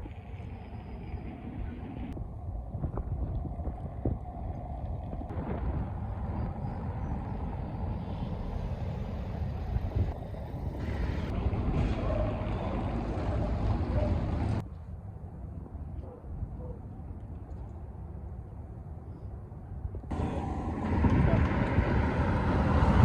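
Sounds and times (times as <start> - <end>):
wind buffeting microphone: 0.0 - 14.6, 19.7 - 23.0.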